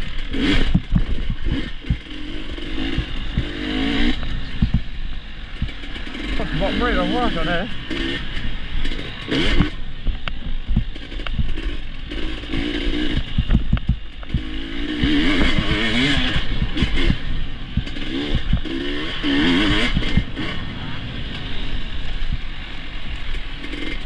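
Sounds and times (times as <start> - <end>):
bike knocking and clattering: 0.0 - 5.0, 7.9 - 19.1
dirt bike engine revving: 0.0 - 24.0.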